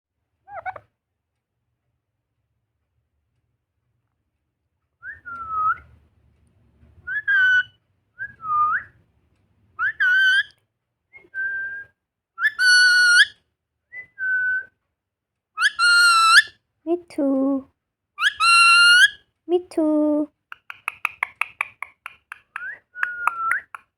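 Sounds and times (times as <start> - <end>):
parrot whistled calls: 7.1 - 7.8, 9.8 - 10.5, 12.4 - 13.4, 15.6 - 16.5, 18.2 - 19.2, 22.5 - 23.8.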